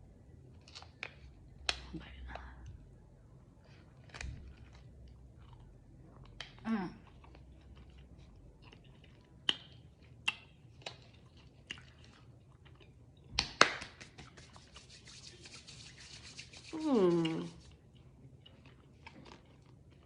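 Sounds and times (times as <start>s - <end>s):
mouth clicks and smacks chewing: 4.0s - 14.8s.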